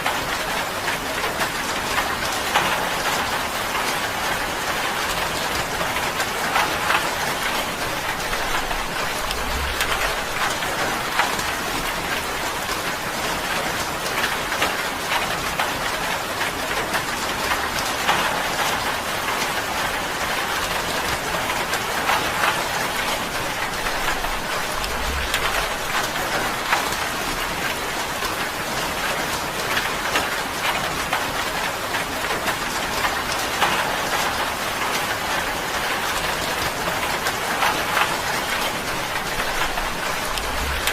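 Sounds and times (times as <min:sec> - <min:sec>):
rain on a tin roof: 0:00.0 - 0:40.9.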